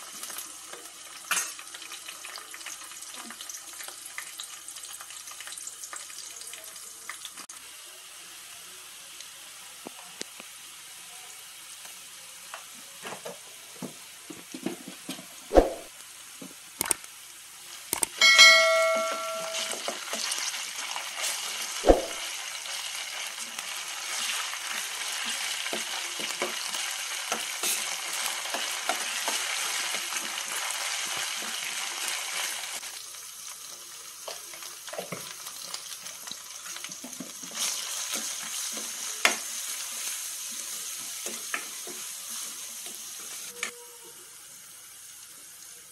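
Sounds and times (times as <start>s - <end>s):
onions sizzling in oil: 0.0s - 45.9s
metal spoon stirring and tapping pan: 18.0s - 20.4s
metallic clang: 18.2s - 19.8s.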